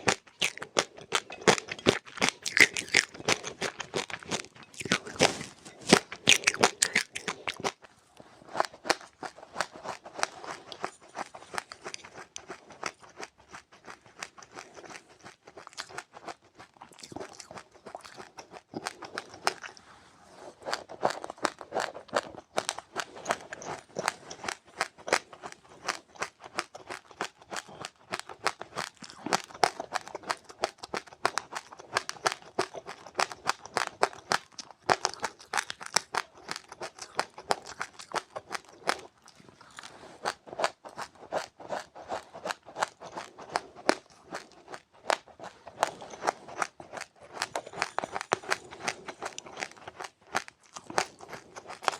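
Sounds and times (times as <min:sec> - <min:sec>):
chewing crunchy seeds: 0:00.0 - 0:51.9.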